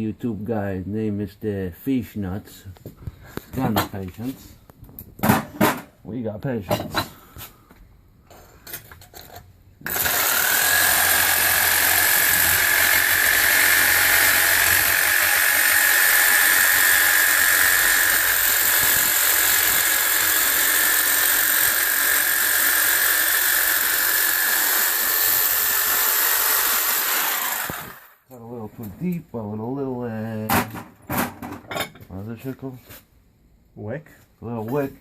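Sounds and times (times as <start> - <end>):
electric power tool whine: 9.8 - 28.2.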